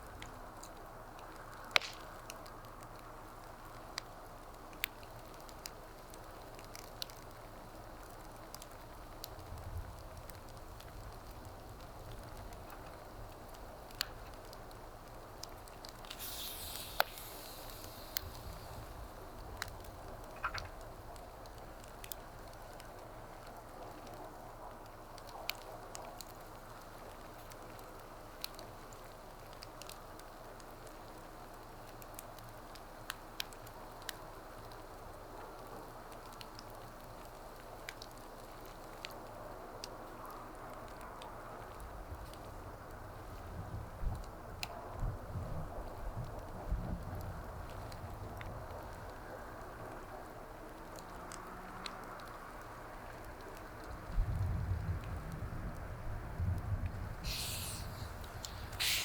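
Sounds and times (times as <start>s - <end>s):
burning wood popping: 0.0s - 39.3s, 57.0s - 59.0s
wood fire crackling: 0.0s - 59.0s
brief hiss: 16.1s - 19.1s, 57.2s - 59.0s.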